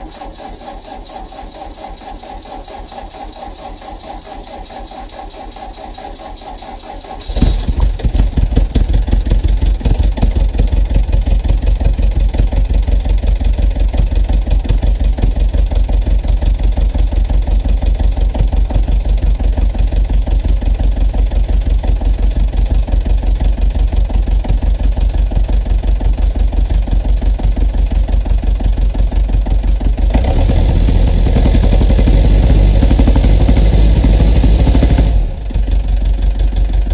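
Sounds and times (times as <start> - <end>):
starter motor cranking: 0.0 - 10.8
diesel engine idling: 0.0 - 36.9.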